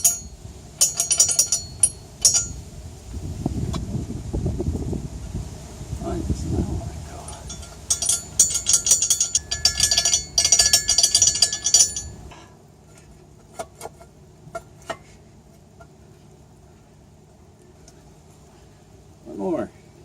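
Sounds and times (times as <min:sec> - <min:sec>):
metal rattling: 0:00.0 - 0:02.6, 0:07.2 - 0:12.3.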